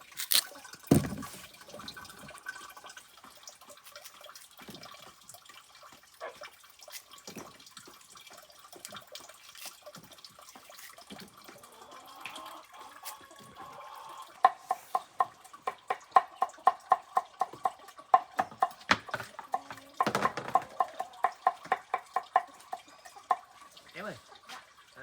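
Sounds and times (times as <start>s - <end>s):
knife chopping on cutting board: 15.7s - 22.2s.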